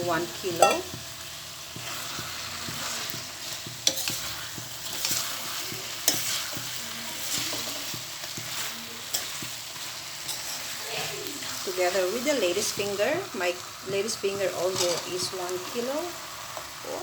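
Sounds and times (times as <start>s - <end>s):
chicken sizzling in a pan: 0.0s - 17.0s
utensil knocking against pan: 0.6s - 1.0s.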